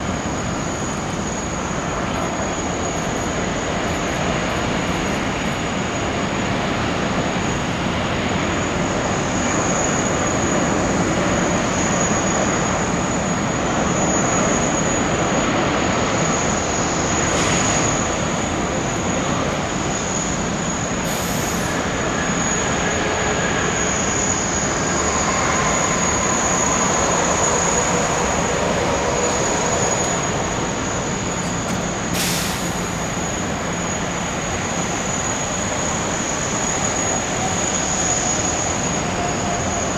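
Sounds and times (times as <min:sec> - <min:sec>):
high-pitched engine whine: 0:00.0 - 0:39.9
jet engines roaring: 0:00.0 - 0:39.9.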